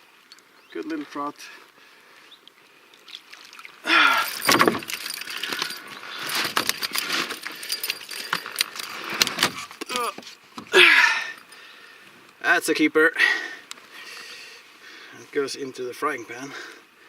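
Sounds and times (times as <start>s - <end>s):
fishing tackle rattling and clicking: 4.1s - 9.9s.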